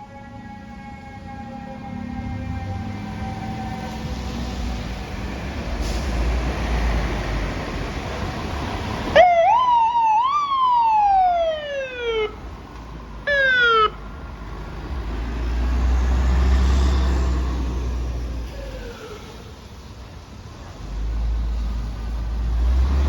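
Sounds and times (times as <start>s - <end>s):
fire truck siren: 0.0s - 6.0s, 8.9s - 12.6s, 13.2s - 14.2s
heavy truck engine rumble: 0.0s - 23.0s.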